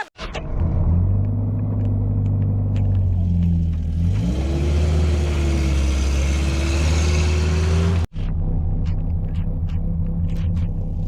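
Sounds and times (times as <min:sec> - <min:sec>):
vehicle engine running: 0:00.5 - 0:11.0.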